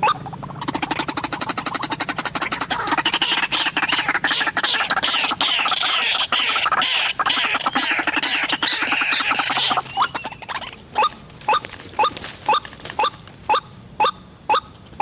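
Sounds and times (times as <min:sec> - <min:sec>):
waterhens croaking chatter: 0:00.0 - 0:15.0.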